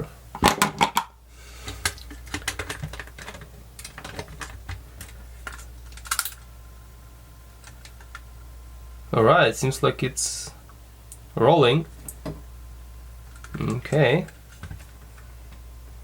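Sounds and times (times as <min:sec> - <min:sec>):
faint cassette player whine: 0:00.0 - 0:16.0
plastic clicks and knocks: 0:00.4 - 0:01.1.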